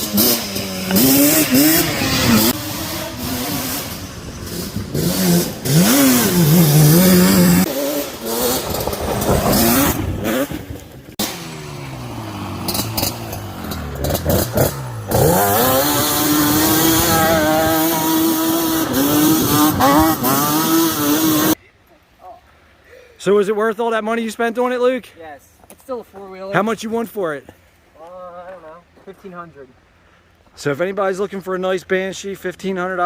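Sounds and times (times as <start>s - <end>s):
two-stroke quad engine revving: 0.0s - 21.6s.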